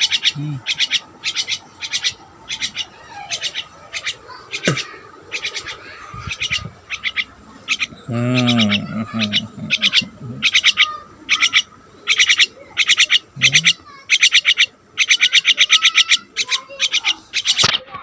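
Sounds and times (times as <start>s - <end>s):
low drawn-out bird call: 0.0s - 17.8s
pet birds chirping: 0.0s - 18.0s.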